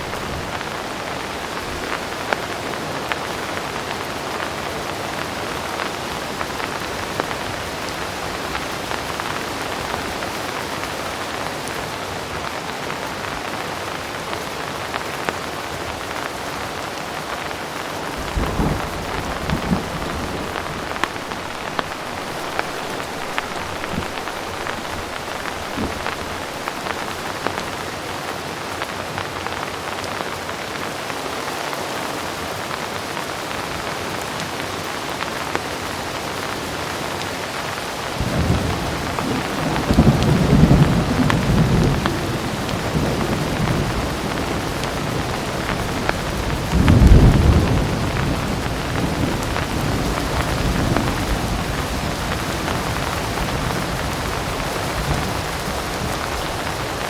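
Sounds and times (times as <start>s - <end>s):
heavy rain falling: 0.0s - 57.0s
sharp raindrop ticks: 0.0s - 57.0s
distant thunder rumbling: 18.1s - 28.1s, 38.1s - 57.0s.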